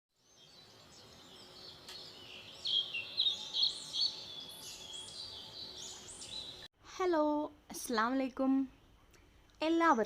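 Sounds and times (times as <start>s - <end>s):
birds chirping: 0.2s - 6.7s.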